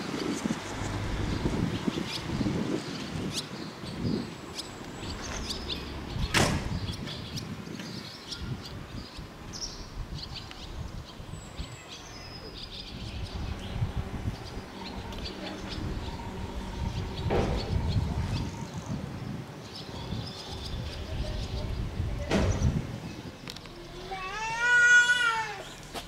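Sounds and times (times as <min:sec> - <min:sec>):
small birds chirping: 0:00.1 - 0:26.0
sharp knock: 0:06.3 - 0:06.8
low outdoor rumble: 0:12.7 - 0:25.9.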